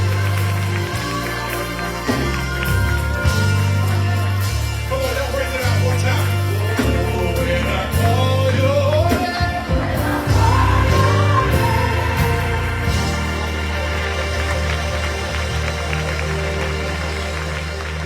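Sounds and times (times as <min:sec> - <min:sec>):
person singing: 0:00.0 - 0:05.4, 0:06.4 - 0:14.7
held bass chords: 0:00.0 - 0:18.0.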